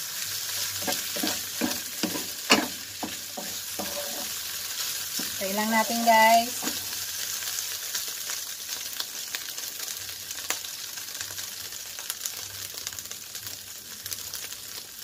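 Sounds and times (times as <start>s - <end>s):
meat sizzling in a pan: 0.0s - 15.0s
oil popping and crackling: 0.0s - 15.0s.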